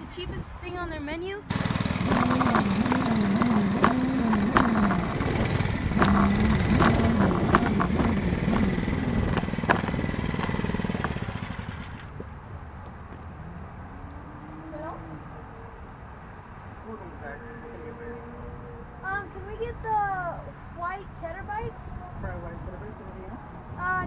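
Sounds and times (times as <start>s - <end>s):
mini bike engine running: 1.5s - 12.2s.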